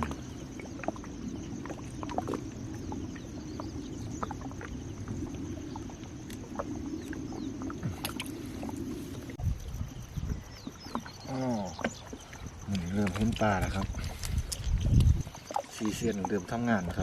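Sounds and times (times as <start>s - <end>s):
boat engine rumble: 0.0s - 17.0s.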